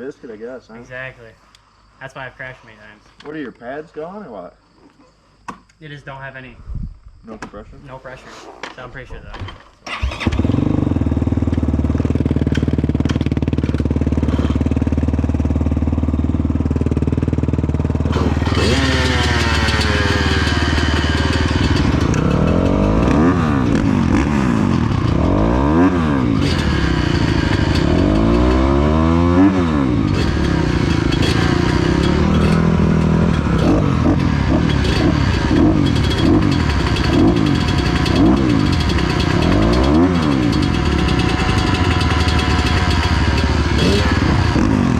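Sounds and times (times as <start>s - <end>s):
dirt bike engine revving: 9.9s - 44.9s.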